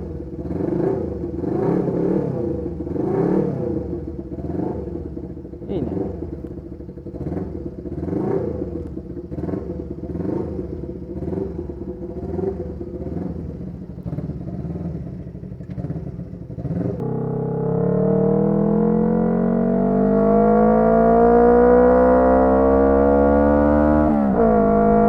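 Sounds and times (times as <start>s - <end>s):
motorcycle engine idling unevenly: 0.0s - 1.4s, 2.5s - 3.0s, 3.6s - 18.0s.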